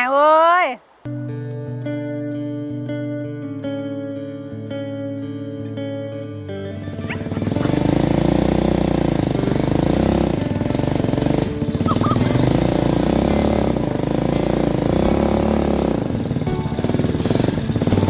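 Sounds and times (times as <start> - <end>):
small engine running: 7.0 - 18.0.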